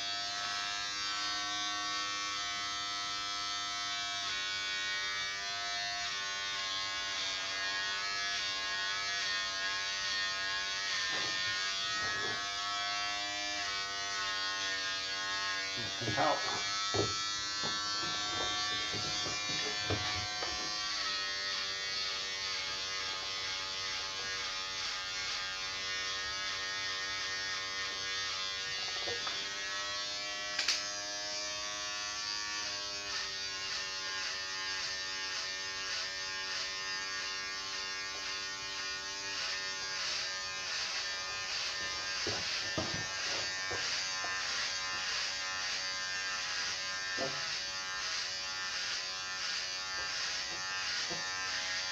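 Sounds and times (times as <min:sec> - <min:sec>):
electric hair clippers buzzing: 0:00.0 - 0:51.9
sharp click: 0:30.6 - 0:30.8.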